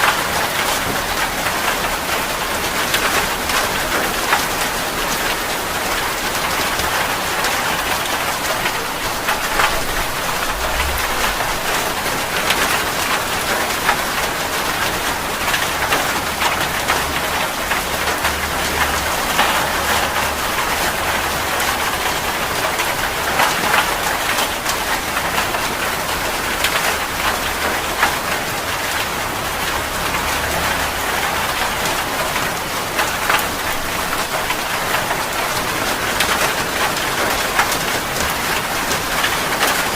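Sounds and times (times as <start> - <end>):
heavy rain falling: 0.0 - 39.9
faint low rumble: 9.6 - 12.3.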